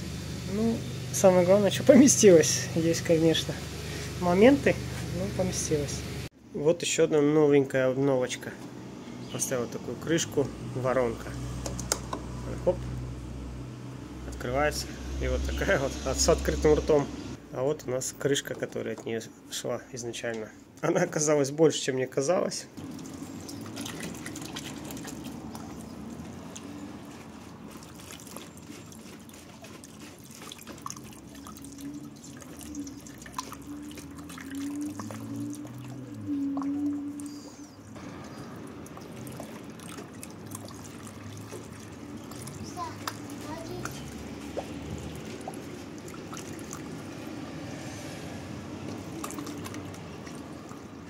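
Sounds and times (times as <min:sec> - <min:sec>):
liquid dripping and trickling: 0:22.8 - 0:51.0.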